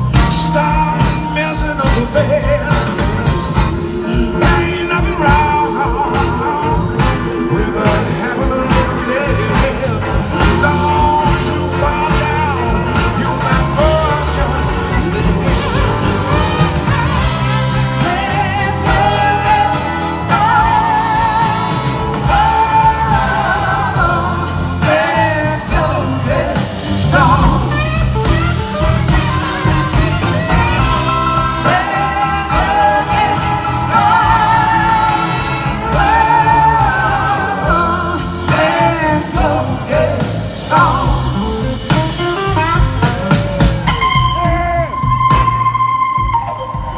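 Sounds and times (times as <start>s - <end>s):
person singing: 0.0s - 45.4s
live blues rock band playing: 0.0s - 46.9s.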